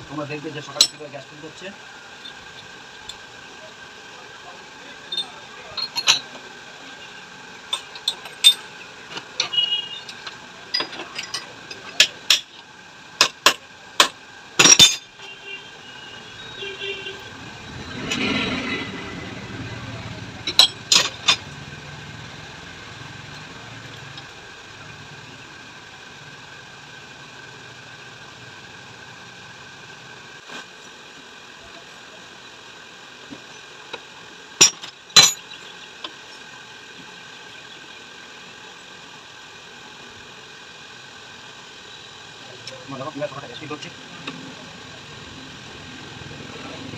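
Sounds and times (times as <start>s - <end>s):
metal tools clinking: 5.0s - 6.4s, 7.7s - 8.8s, 9.4s - 12.5s, 14.6s - 15.1s, 20.4s - 21.5s, 34.6s - 35.6s.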